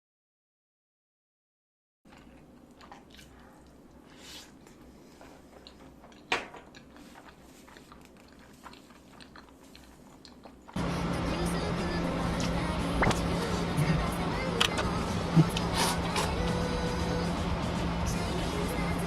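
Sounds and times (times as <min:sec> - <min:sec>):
person biting and chewing: 0:02.1 - 0:04.6, 0:05.5 - 0:10.8, 0:15.3 - 0:16.4.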